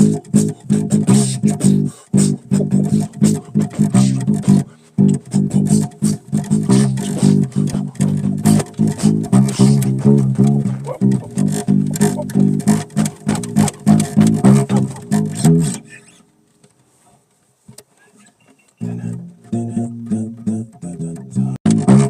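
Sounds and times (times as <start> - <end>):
bass guitar plucked notes: 0.0 - 16.2, 18.8 - 22.0.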